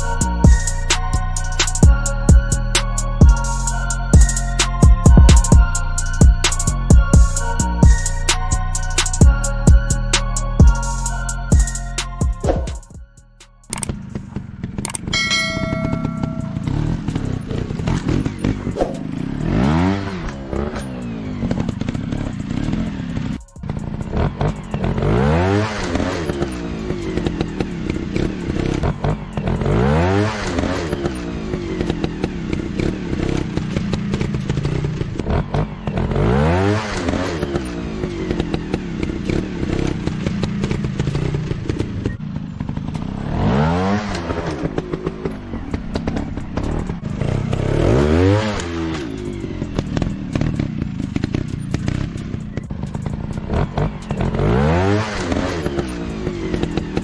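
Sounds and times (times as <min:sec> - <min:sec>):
dirt bike engines revving: 0:13.7 - 0:57.0.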